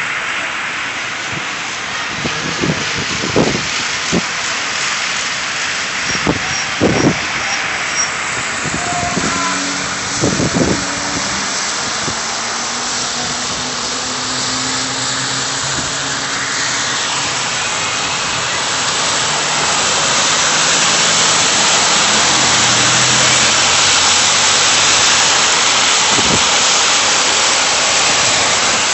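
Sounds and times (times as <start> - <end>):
street traffic: 0.0 - 28.9
snowstorm wind rushing: 0.7 - 28.9.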